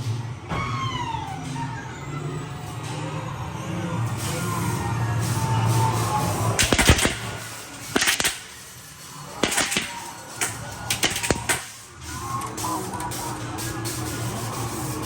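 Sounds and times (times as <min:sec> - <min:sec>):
sharp noisy bursts: 0:05.5 - 0:12.0.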